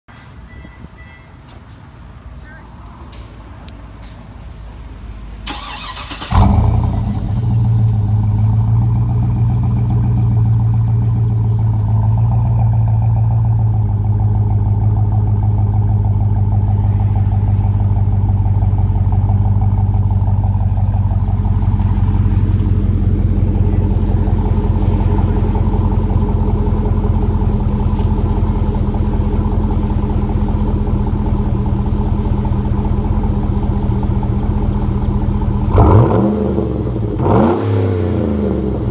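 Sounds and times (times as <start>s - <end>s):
car engine idling: 4.8s - 38.9s
engine starter cranking: 5.5s - 7.2s.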